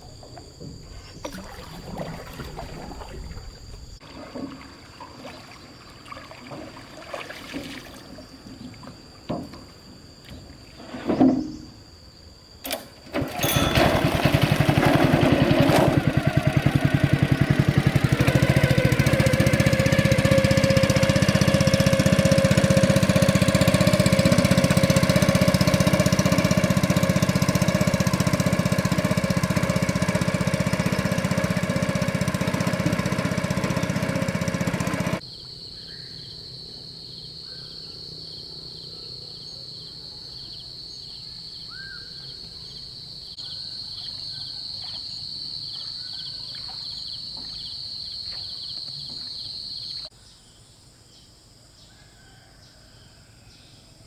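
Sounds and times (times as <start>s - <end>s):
high insect drone: 0.0s - 13.6s, 35.2s - 50.2s
engine running: 12.6s - 35.2s
bird chirps: 37.2s - 50.1s.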